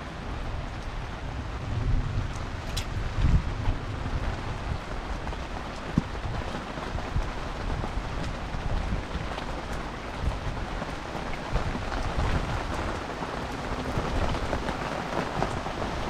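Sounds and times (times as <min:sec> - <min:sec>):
heavy rain on street: 0:00.0 - 0:16.0.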